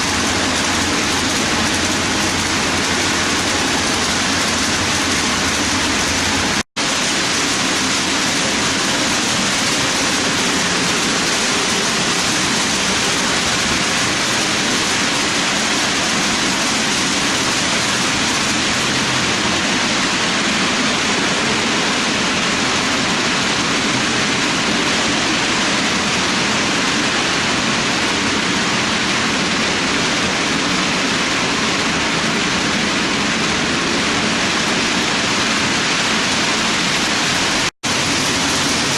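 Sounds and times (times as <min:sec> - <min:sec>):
model freight cars rolling on track: 0:00.0 - 0:38.9.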